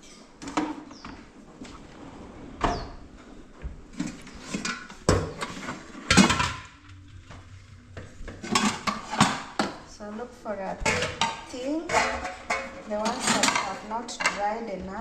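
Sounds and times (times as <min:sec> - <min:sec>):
pots and dishes clattering: 0:03.9 - 0:07.4, 0:08.0 - 0:09.8, 0:10.8 - 0:14.7.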